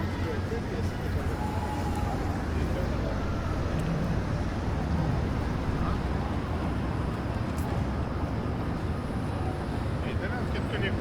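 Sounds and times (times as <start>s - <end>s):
city street rumble: 0.0s - 11.0s
traffic noise: 0.0s - 11.0s.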